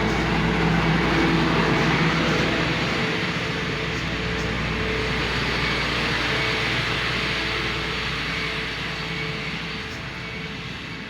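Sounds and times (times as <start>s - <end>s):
heavy machinery engine humming: 0.0s - 8.3s.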